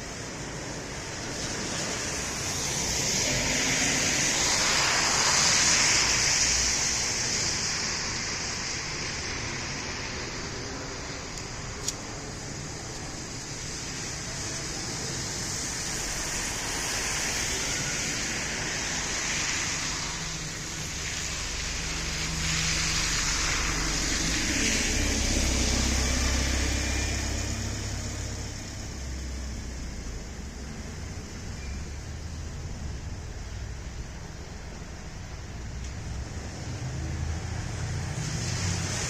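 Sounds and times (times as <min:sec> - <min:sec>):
cars passing by: 0:00.0 - 0:39.0.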